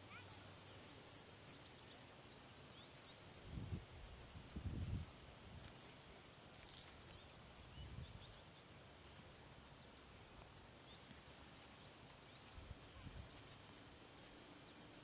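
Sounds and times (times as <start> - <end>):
wind rumbling on microphone: 3.5 - 5.6.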